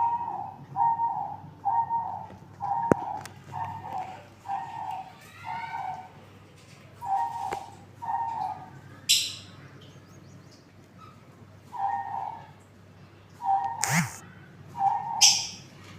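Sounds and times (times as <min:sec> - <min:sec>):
parrots calling: 0:13.4 - 0:15.7.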